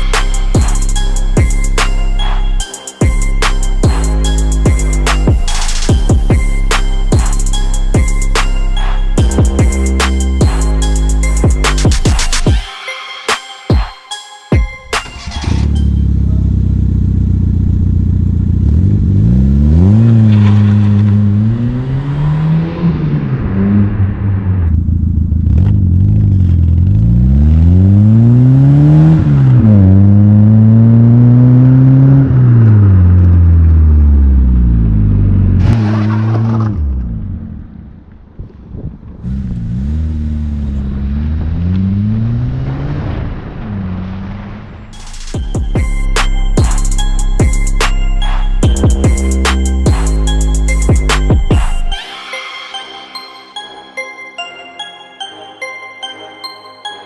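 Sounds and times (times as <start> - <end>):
car engine revving: 0.0 - 12.6, 15.1 - 38.2, 39.1 - 52.0.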